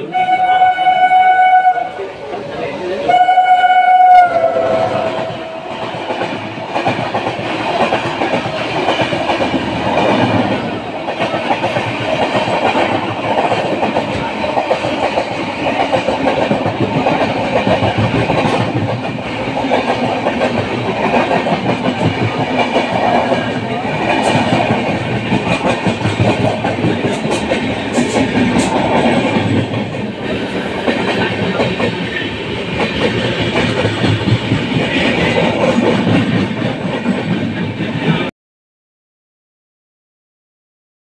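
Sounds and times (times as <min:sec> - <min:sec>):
train horn: 0:00.0 - 0:02.0, 0:03.1 - 0:05.7
train wheels clattering over rails: 0:04.8 - 0:38.3.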